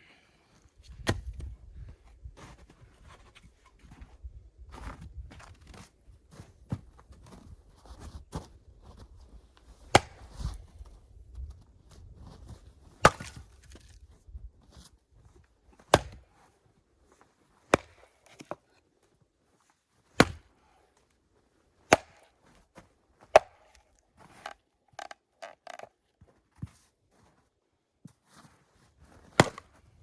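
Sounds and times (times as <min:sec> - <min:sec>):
axe chopping firewood: 0:09.8 - 0:10.6, 0:13.0 - 0:14.0, 0:15.9 - 0:16.4, 0:17.7 - 0:18.7, 0:20.2 - 0:20.5, 0:21.9 - 0:22.4, 0:23.3 - 0:23.8, 0:29.3 - 0:29.8.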